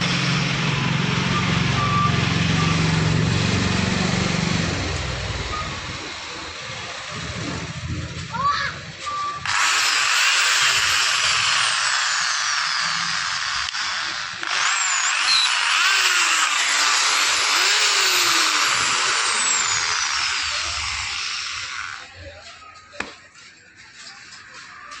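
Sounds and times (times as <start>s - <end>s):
electric drill running: 9.4s - 22.1s.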